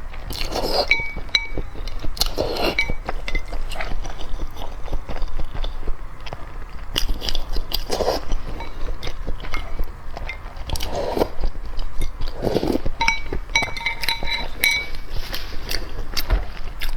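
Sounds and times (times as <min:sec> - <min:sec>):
crunching and wet chewing: 0:00.0 - 0:16.9
ringing clinks: 0:13.0 - 0:15.0.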